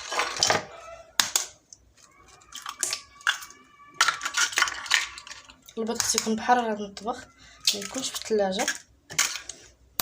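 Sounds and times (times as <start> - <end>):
eggshells cracking: 1.2 - 6.4, 7.6 - 10.0.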